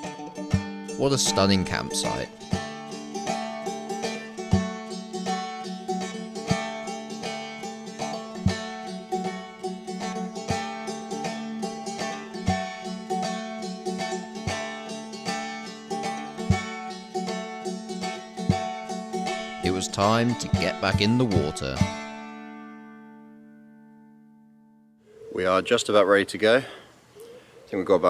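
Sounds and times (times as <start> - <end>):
plucked string instruments: 0.0 - 24.7
steady low beat: 0.5 - 22.3.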